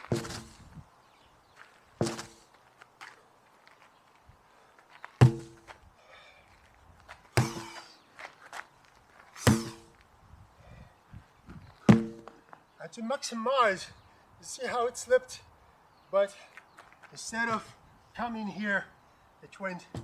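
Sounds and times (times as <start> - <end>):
sledgehammer blows ringing: 5.2 - 5.7, 7.4 - 7.8, 9.4 - 9.9, 11.9 - 12.2.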